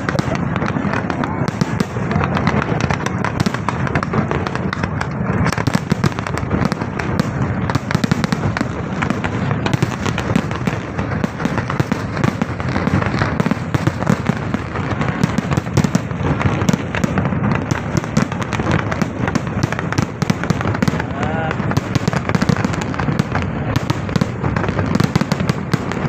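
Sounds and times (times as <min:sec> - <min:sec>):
fireworks banging and crackling: 0:00.0 - 0:26.0.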